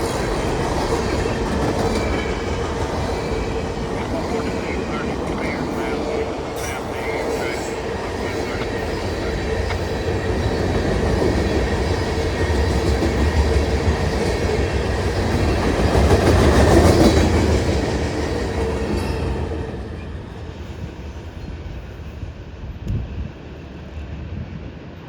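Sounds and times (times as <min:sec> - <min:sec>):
train wheels clacking on rails: 0:00.0 - 0:21.3
ringing tone from wheels: 0:18.9 - 0:20.1.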